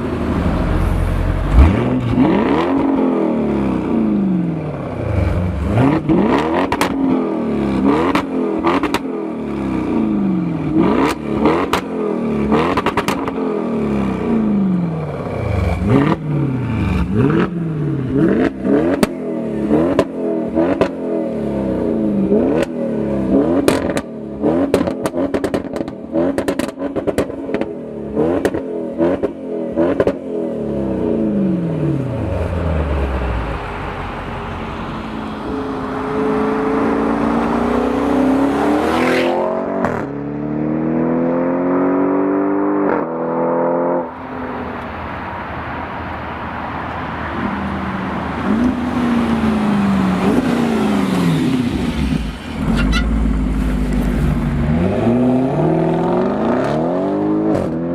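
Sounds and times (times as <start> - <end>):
sports car engine revving: 0.7 - 33.7, 48.4 - 57.9
car accelerating hard: 35.2 - 44.2, 48.4 - 57.9.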